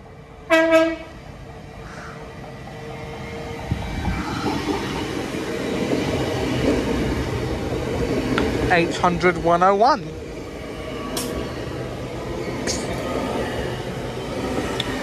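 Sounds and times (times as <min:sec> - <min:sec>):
approaching train rumble: 0:00.0 - 0:15.0
train horn toots: 0:00.5 - 0:01.2.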